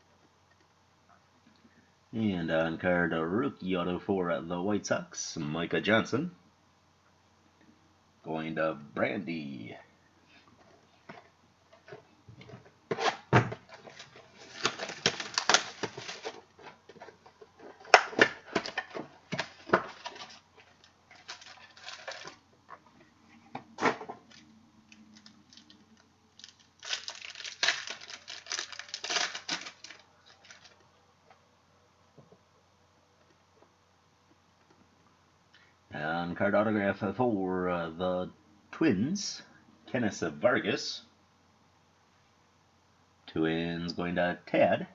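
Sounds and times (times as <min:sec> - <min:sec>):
card packaging crinkling: 0:12.9 - 0:22.4, 0:24.2 - 0:30.8.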